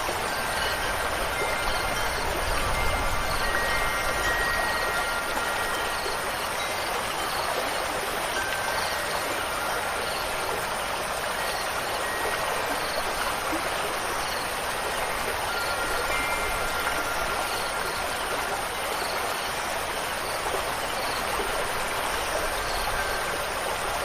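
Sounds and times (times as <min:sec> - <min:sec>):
wind chime tones: 0:00.0 - 0:10.8, 0:11.4 - 0:13.5, 0:15.1 - 0:18.6
running water: 0:00.0 - 0:24.0.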